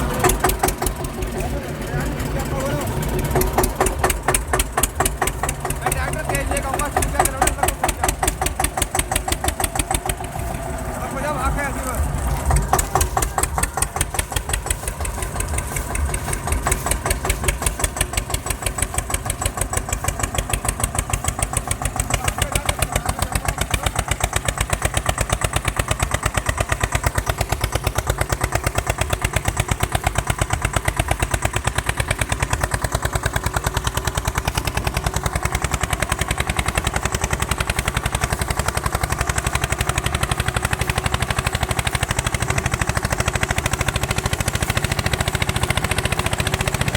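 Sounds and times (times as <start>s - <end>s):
tractor diesel engine chugging: 0.0s - 46.9s.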